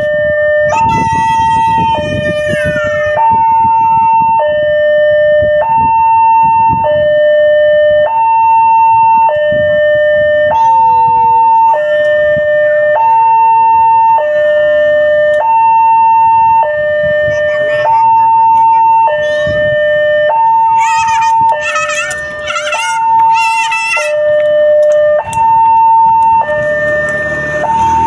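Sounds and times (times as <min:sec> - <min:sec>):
level crossing two-tone alarm: 0:00.0 - 0:28.0
rumble of passing trains: 0:23.2 - 0:28.0.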